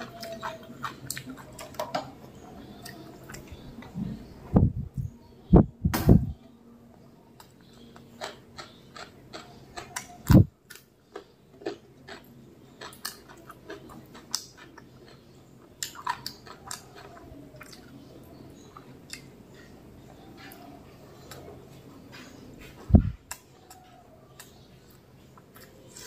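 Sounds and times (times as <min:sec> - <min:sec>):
chewing with wet mouth clicks: 0:00.0 - 0:04.0, 0:07.4 - 0:19.7
loud deep thump: 0:05.8 - 0:06.4.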